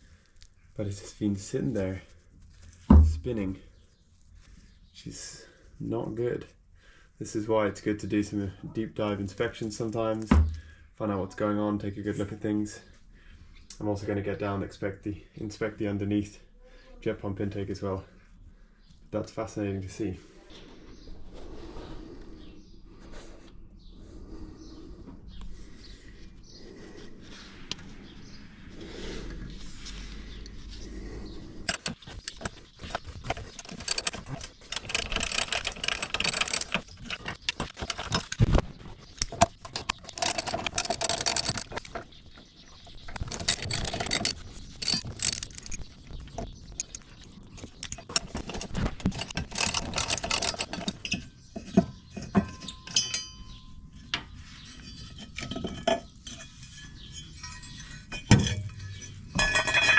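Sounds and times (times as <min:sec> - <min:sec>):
hand tools clicking on metal: 0:31.6 - 0:53.3.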